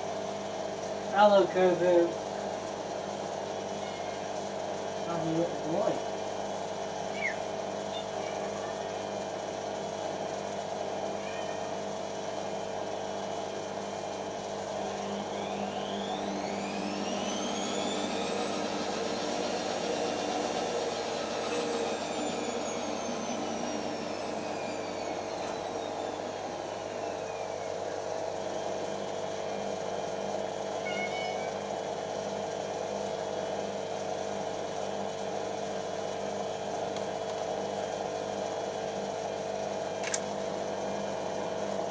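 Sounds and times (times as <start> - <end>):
washing machine spinning hum: 0.0 - 41.9
high motor whine: 14.7 - 29.8.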